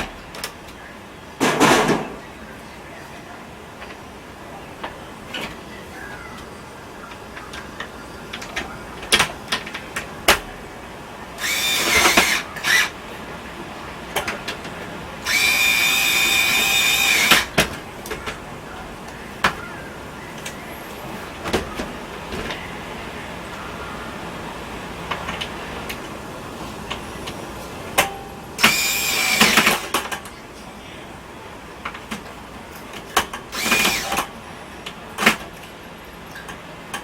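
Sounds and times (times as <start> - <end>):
power drill whining: 11.4 - 13.0, 15.2 - 17.6, 28.6 - 29.9, 33.5 - 34.3.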